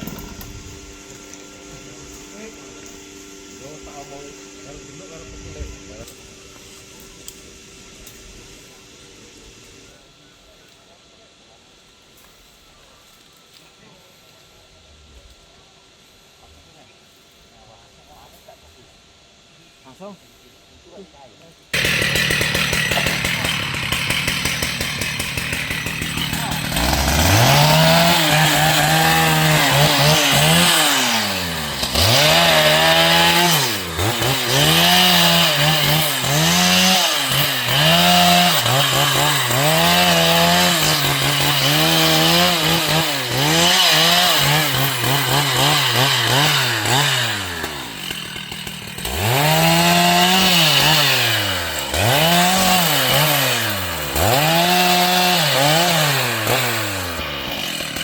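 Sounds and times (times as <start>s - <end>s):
chainsaw engine revving: 0.0s - 9.9s, 21.7s - 58.0s.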